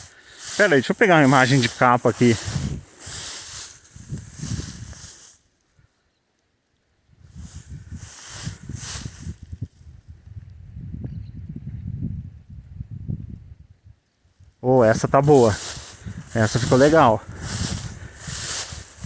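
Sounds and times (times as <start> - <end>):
wind buffeting microphone: 1.7 - 5.1, 7.1 - 14.0, 14.9 - 19.0.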